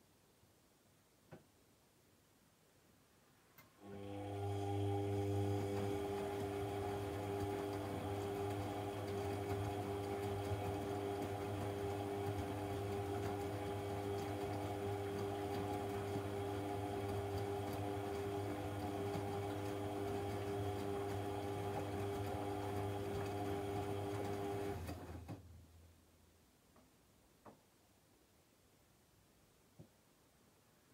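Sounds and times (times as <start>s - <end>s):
washing machine motor hum: 3.8s - 25.7s.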